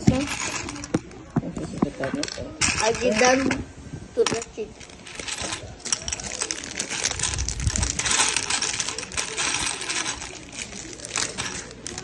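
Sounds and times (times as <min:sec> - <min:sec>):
plastic pieces clattering: 0:00.0 - 0:01.1, 0:02.2 - 0:03.6, 0:04.2 - 0:12.0
plastic bag crinkling: 0:04.8 - 0:12.0.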